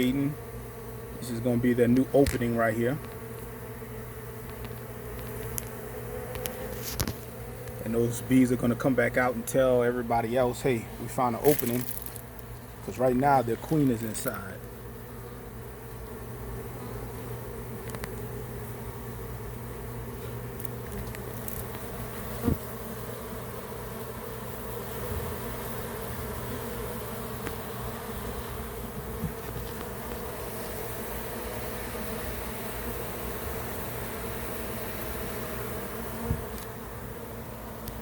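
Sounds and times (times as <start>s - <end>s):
honeybees buzzing: 0.0s - 38.0s.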